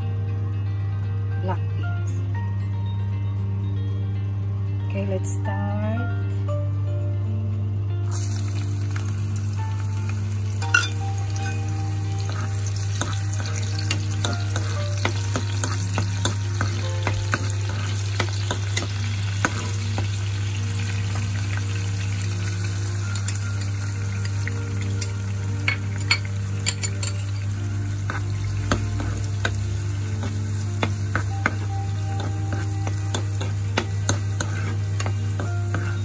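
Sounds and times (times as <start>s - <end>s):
beans sizzling in hot oil: 8.0s - 36.0s
metal spoon scraping a pan: 12.2s - 20.0s, 30.2s - 36.0s.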